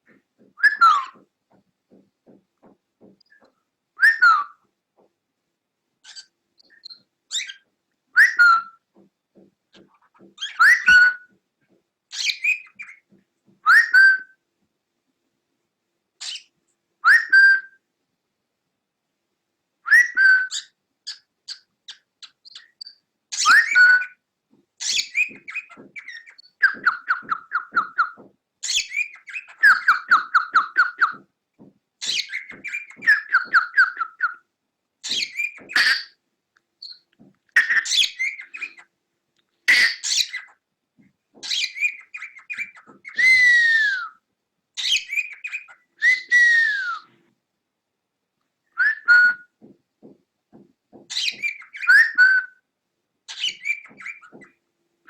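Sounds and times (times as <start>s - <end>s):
cockatiel whistling: 0.6s - 1.2s, 4.0s - 4.6s, 8.2s - 8.8s, 10.4s - 11.3s, 13.7s - 14.3s, 17.0s - 17.8s, 19.9s - 20.7s, 23.4s - 24.2s, 24.8s - 31.2s, 32.0s - 34.4s, 37.6s - 38.8s, 41.4s - 44.2s, 44.8s - 47.1s, 48.8s - 49.5s, 51.1s - 52.6s, 53.3s - 54.5s.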